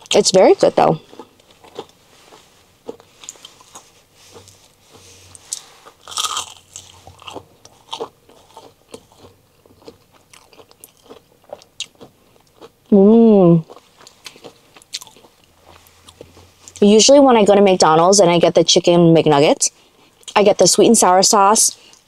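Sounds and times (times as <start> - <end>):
chewing crispy food: 0.8 - 13.0, 13.6 - 16.9.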